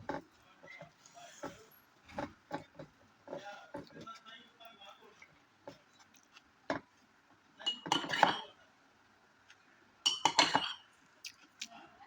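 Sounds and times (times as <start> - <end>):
utensil clinking against plate: 7.7 - 8.6, 10.1 - 10.9.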